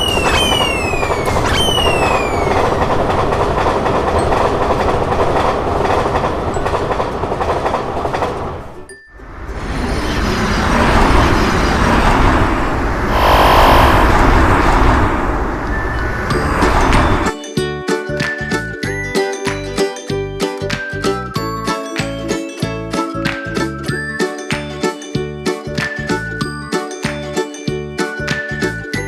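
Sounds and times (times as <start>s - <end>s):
train wheels rumbling on rails: 0.0s - 17.4s.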